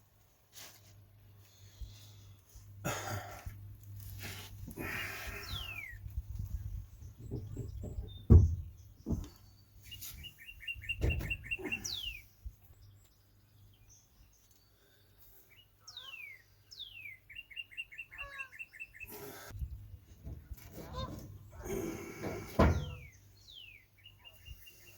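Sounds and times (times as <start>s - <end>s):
songbird singing: 4.8s - 24.9s
low thumps: 7.1s - 9.4s.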